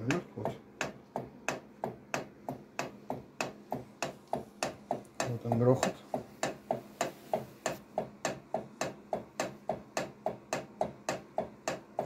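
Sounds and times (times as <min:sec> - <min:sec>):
camshaft knocking: 0:00.0 - 0:12.0.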